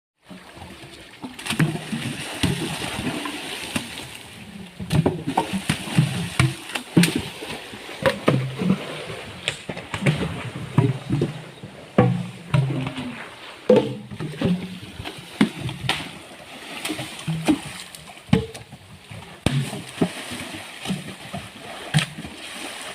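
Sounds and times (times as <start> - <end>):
water splashing and sloshing: 0.2 - 22.9
logs knocking: 8.0 - 16.1, 17.2 - 18.8, 19.4 - 20.2.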